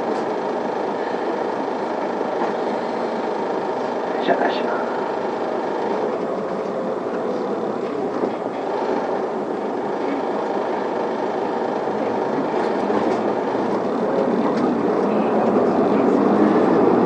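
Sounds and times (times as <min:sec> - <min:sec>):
bus engine pulling away: 0:00.0 - 0:04.2, 0:04.8 - 0:17.0.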